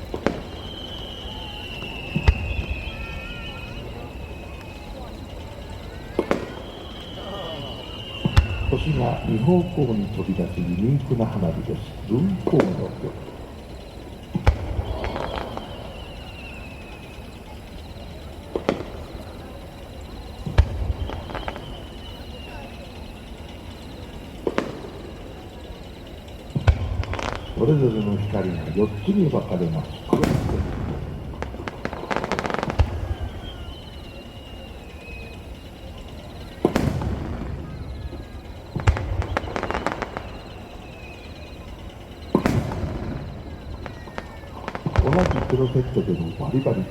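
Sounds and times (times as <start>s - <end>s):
faint falling whistle: 0.0s - 46.9s
firework bangs: 0.0s - 46.9s
firework cracks: 0.0s - 46.9s.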